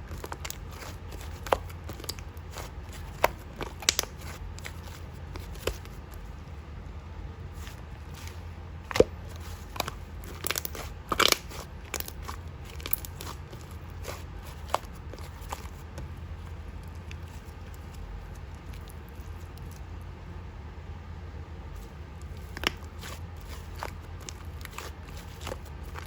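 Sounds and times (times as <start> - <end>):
low steady hum: 0.0 - 26.0
slime squeezed by hand crackling: 7.6 - 15.8.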